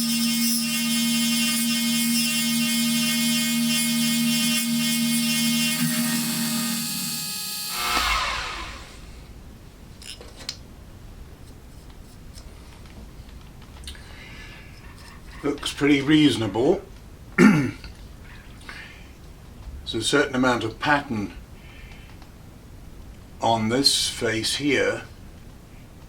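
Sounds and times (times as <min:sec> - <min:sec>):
end mill cutting with high ringing: 0:00.0 - 0:09.0
low machine hum: 0:03.2 - 0:09.7.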